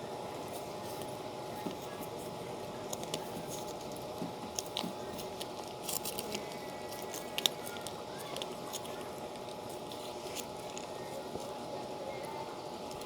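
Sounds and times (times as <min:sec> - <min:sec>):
room hum: 0:00.0 - 0:13.0
chewing crunchy fried snacks: 0:02.8 - 0:11.8.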